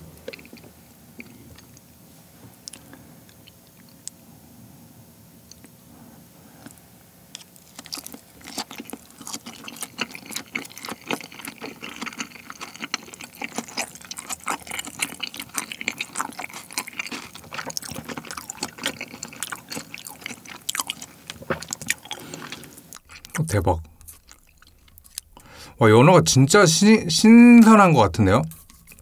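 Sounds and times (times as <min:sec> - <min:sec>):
wet chewing: 0:06.6 - 0:25.6.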